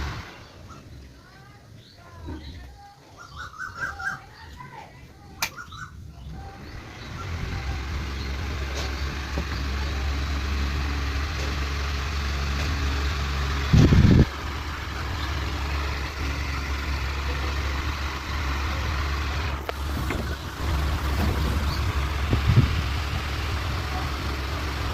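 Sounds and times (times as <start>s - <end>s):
fan humming: 0.0s - 24.9s.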